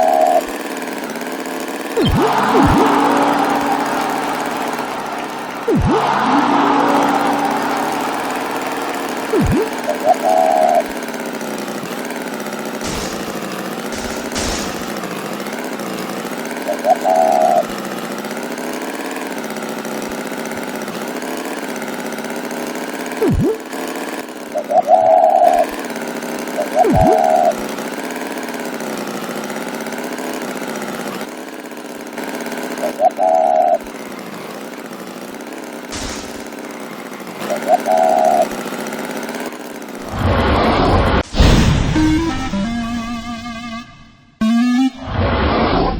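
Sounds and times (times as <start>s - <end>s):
engine-like drone: 0.0s - 22.0s, 22.6s - 28.6s, 35.8s - 45.9s
short high toot: 2.0s - 10.9s, 41.4s - 45.2s.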